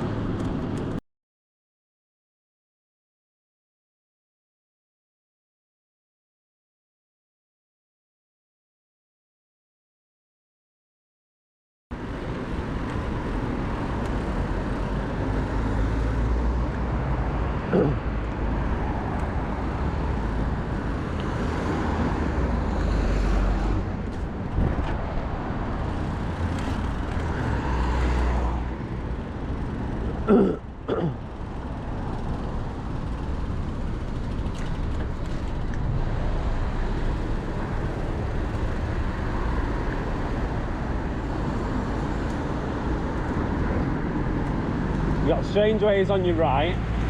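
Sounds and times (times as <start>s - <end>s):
road traffic rumble: 0.0s - 1.0s, 11.9s - 47.0s.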